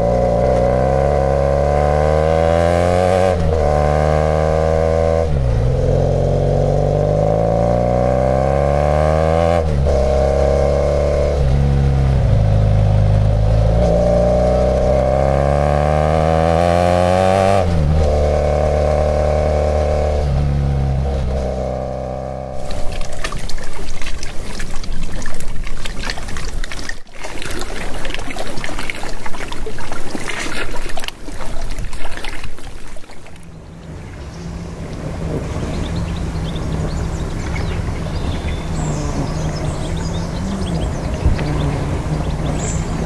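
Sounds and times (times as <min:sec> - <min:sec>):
motorcycle engine revving: 0:00.0 - 0:22.9, 0:33.5 - 0:43.0
water at the shore: 0:00.0 - 0:43.0
wind on microphone: 0:35.0 - 0:43.0.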